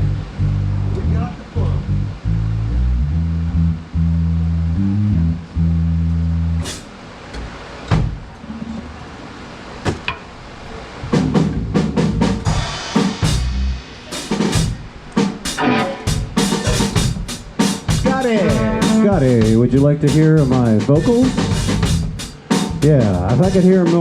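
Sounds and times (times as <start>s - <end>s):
electric bass low notes: 0.0s - 6.8s, 11.0s - 14.0s, 17.9s - 24.0s
drum kit hits: 6.6s - 6.9s, 11.1s - 24.0s
cymbal: 12.5s - 14.8s.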